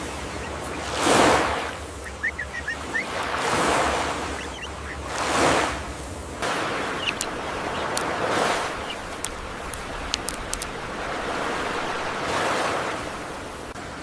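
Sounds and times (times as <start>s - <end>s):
rushing ambient noise: 0.0s - 14.0s
faint high chirps: 1.8s - 3.4s, 4.2s - 5.1s, 6.6s - 9.8s.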